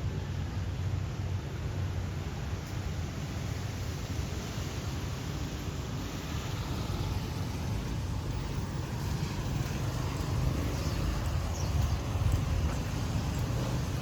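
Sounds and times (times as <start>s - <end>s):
street traffic rumble: 0.0s - 14.0s
wind buffeting microphone: 6.3s - 14.0s.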